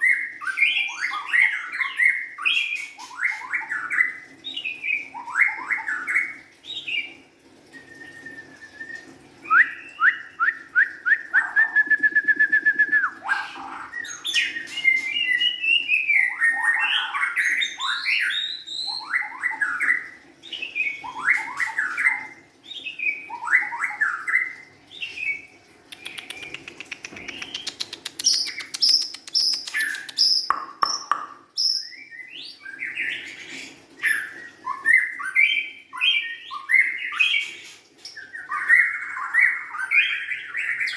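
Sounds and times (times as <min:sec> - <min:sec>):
bird singing whistled song: 0:07.7 - 0:33.3.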